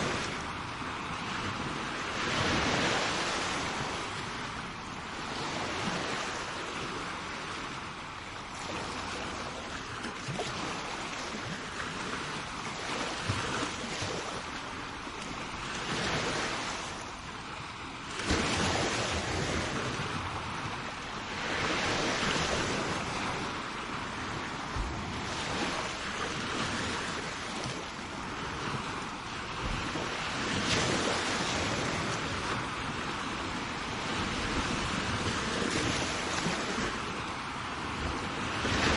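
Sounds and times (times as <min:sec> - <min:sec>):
sea waves washing onto shore: 0:00.0 - 0:38.9
wind noise on microphone: 0:00.0 - 0:38.9.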